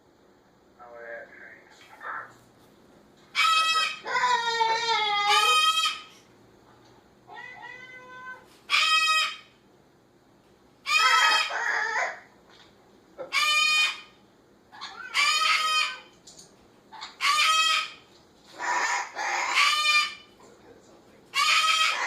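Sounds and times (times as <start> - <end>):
parrot making meow-like calls: 3.3 - 6.1, 7.3 - 9.5, 10.8 - 12.3, 13.2 - 14.1, 14.7 - 16.2, 17.0 - 18.0, 18.6 - 20.3, 21.3 - 22.0.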